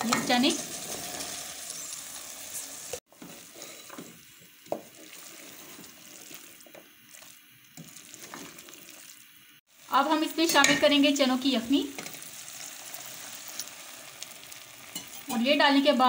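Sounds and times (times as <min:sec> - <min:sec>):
food sizzling in a pot: 0:00.0 - 0:16.0
spatula scraping a pot: 0:03.2 - 0:04.1, 0:04.8 - 0:06.6.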